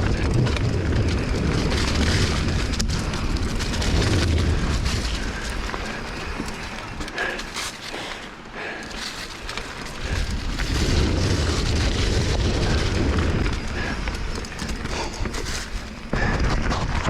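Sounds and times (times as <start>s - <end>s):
bicycle tyres rolling on trail: 0.0s - 17.0s
wind rumbling on microphone: 0.0s - 17.0s.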